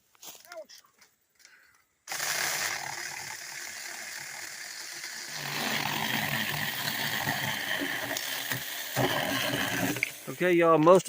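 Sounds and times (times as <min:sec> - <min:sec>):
wood being sawn: 0:02.1 - 0:10.5.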